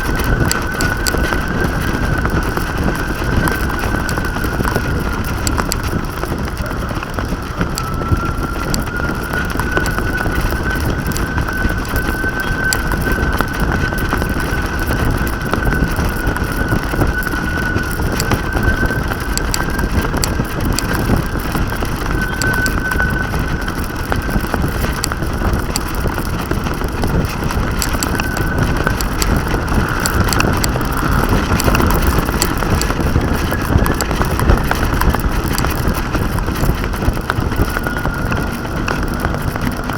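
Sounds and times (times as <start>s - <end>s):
wind buffeting microphone: 0.0s - 39.9s
thin high whistling tone: 7.7s - 21.4s, 22.1s - 24.0s.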